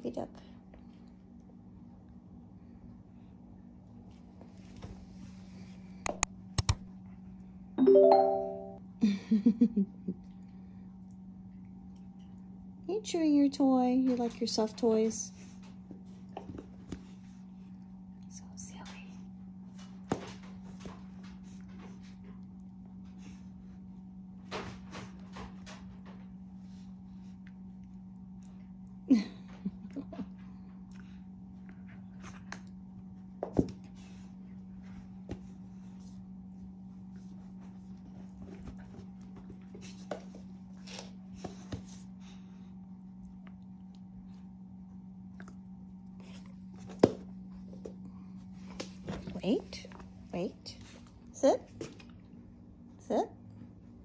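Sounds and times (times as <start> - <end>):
steady low hum: 0.0 - 54.0
sharp clicks: 6.1 - 6.9
piano-like chord: 7.8 - 8.8.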